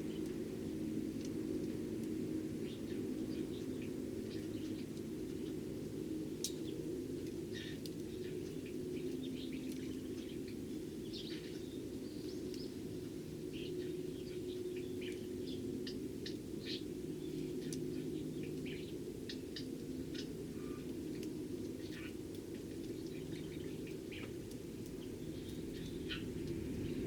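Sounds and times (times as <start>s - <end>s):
steady low hum: 0.0s - 27.0s
sparrows chirping: 7.5s - 20.9s, 21.8s - 22.2s, 22.8s - 27.0s.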